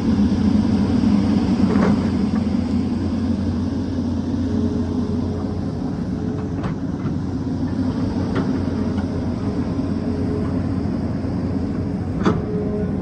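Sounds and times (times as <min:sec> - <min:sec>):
excavator diesel engine running: 0:00.0 - 0:13.0
faint hydraulic whine: 0:00.0 - 0:13.0.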